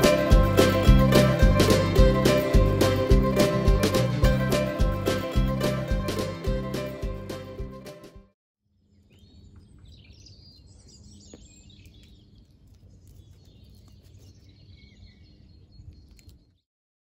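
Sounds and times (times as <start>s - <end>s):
small birds chirping: 8.7s - 16.6s.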